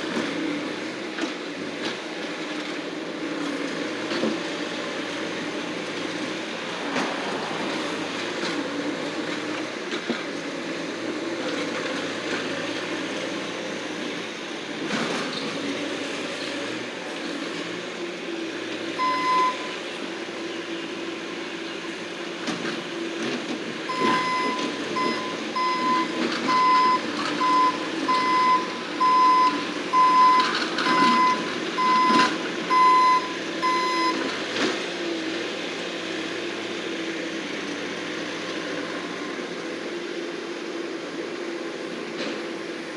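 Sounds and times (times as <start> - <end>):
loader engine running: 0.0 - 42.9
backup alarm beeping: 19.0 - 19.6, 23.9 - 34.2.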